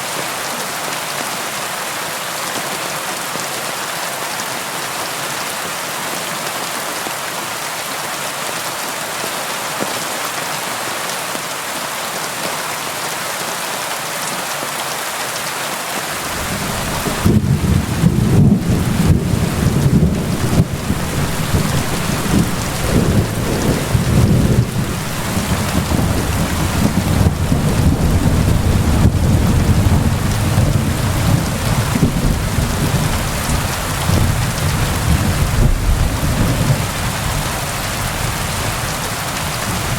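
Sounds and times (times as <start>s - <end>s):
steady rain hiss: 15.9s - 39.9s
deep rumble of thunder: 16.2s - 39.9s.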